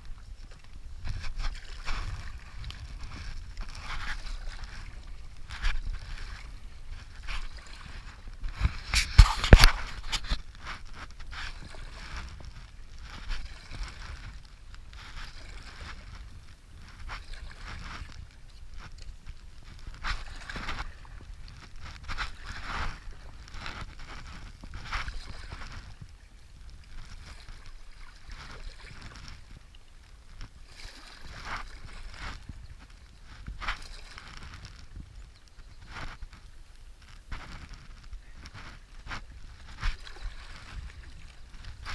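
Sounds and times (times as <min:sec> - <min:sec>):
paddle strokes swishing through water: 0:00.0 - 0:41.9
wind rumble on microphone: 0:00.0 - 0:41.9
water splashing and rushing: 0:37.5 - 0:41.9.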